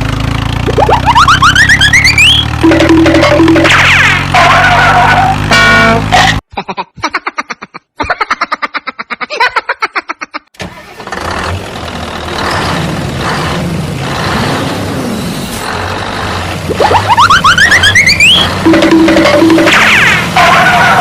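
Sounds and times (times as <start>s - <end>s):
vehicle engine cranking and starting: 10.6s - 16.7s.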